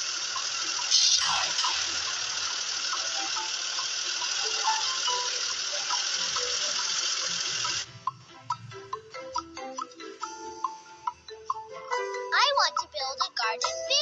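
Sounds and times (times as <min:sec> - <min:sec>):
soft background music: 0:03.0 - 0:14.0.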